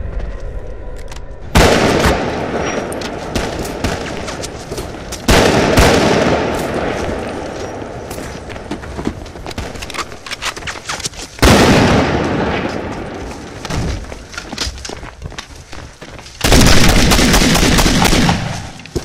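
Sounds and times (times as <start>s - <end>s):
sharp gunshots: 1.5s - 4.2s, 5.3s - 7.0s, 16.4s - 18.8s.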